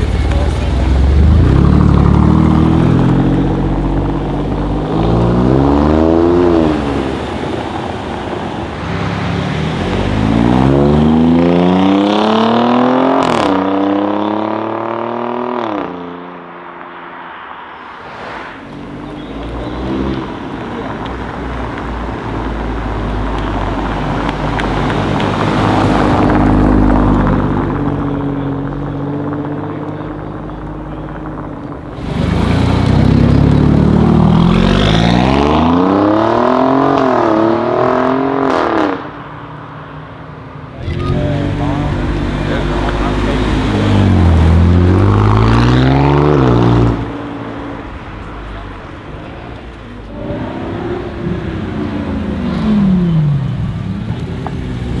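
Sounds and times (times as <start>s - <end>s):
car engine accelerating hard: 0.0s - 16.4s, 18.8s - 39.2s, 40.8s - 55.0s
another car engine: 17.4s - 55.0s.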